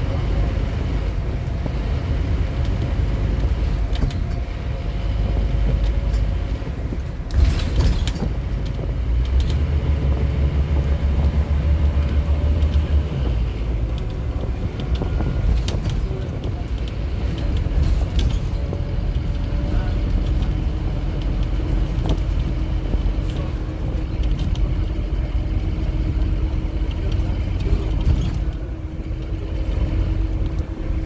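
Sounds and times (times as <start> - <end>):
bus diesel engine running: 0.0 - 31.0.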